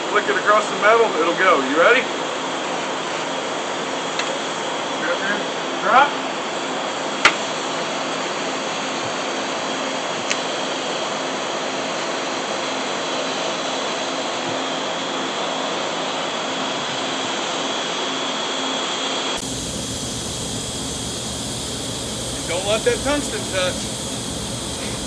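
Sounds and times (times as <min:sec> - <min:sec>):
welding arc hissing: 0:19.4 - 0:25.0.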